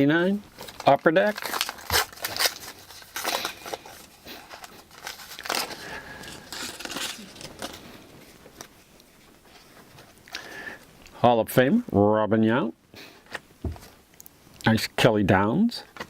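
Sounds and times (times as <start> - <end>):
foil wrapper crinkling and tearing: 0.2 - 8.8.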